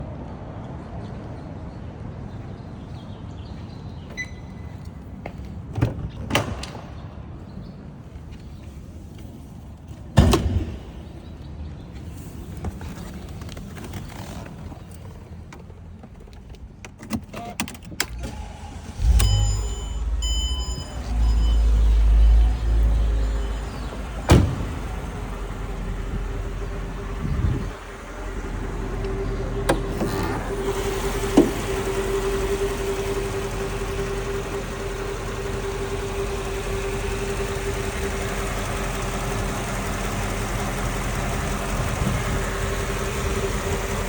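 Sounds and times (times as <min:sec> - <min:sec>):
car engine starting and idling: 0:06.4 - 0:44.0
short beeps: 0:19.0 - 0:22.4.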